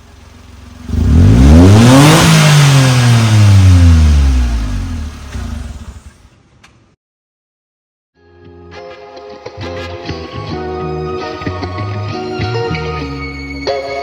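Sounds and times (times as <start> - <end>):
truck engine revving: 0.8 - 6.2.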